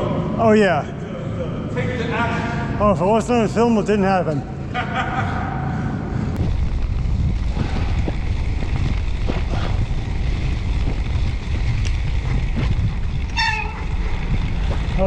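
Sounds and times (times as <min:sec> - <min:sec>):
road and tyre rumble: 0:06.0 - 0:15.0
wind buffeting microphone: 0:06.3 - 0:15.0
high-pitched squeal: 0:13.3 - 0:14.2.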